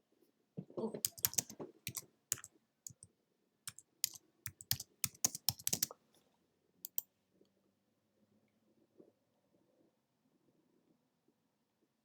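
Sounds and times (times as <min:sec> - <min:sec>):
sharp clicks and taps: 0:01.1 - 0:03.1, 0:03.7 - 0:05.9.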